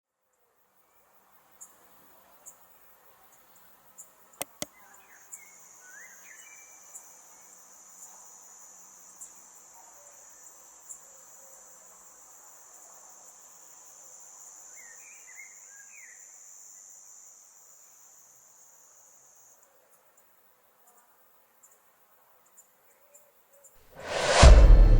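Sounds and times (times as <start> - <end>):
sharp clicks: 4.4 - 4.7
high-pitched insect trill: 5.0 - 20.3.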